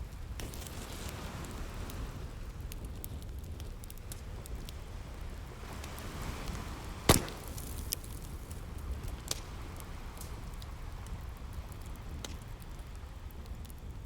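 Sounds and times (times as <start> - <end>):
wood fire crackling and popping: 0.0 - 14.0
sea waves rumbling: 5.5 - 8.8.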